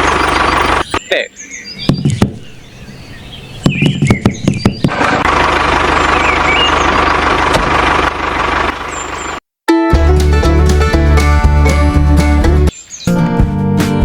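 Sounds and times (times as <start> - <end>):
small engine running: 0.0 - 0.9, 4.9 - 9.4
quick knocks: 1.9 - 2.4, 3.6 - 5.0.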